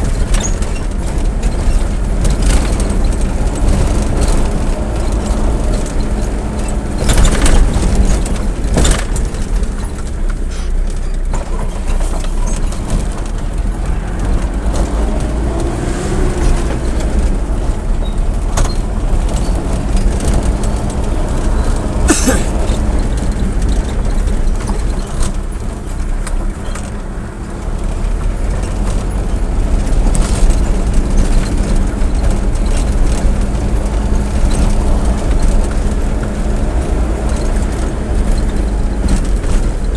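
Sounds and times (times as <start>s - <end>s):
rattles and knocks: 0.0s - 39.9s
vehicle engine and road rumble: 0.0s - 39.9s.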